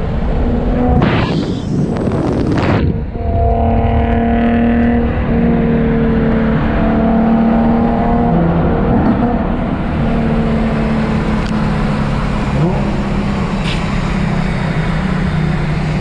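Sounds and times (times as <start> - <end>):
loud rushing noise: 0.0 - 11.2
car engine drone: 0.0 - 16.0.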